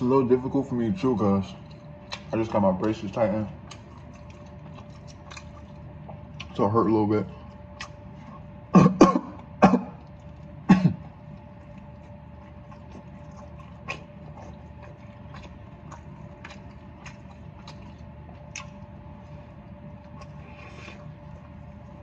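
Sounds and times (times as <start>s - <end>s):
faint steady hum: 0.0s - 22.0s
chewing with wet mouth clicks: 1.4s - 6.6s, 7.3s - 8.6s, 9.4s - 22.0s
person clearing throat: 8.7s - 10.0s, 10.6s - 11.0s.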